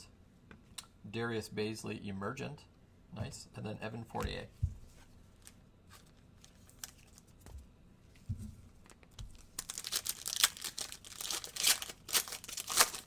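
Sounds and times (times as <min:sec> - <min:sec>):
soft thumps: 0:04.2 - 0:05.0
plastic wrapper tearing and crumpling: 0:05.4 - 0:07.3, 0:08.8 - 0:13.0.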